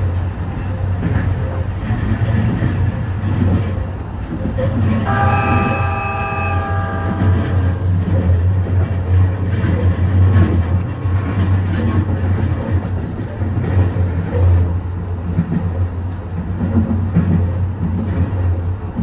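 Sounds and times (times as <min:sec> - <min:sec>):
diesel railcar running: 0:00.0 - 0:19.0.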